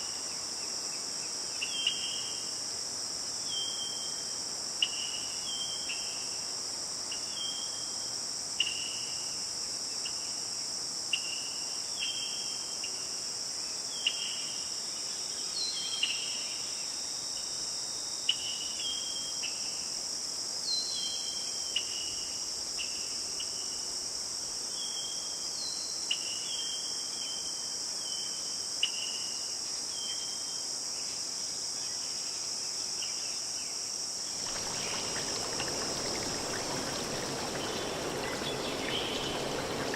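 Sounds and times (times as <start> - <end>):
high-pitched insect chorus: 0.0 - 39.9
short insect chirps: 34.2 - 39.9.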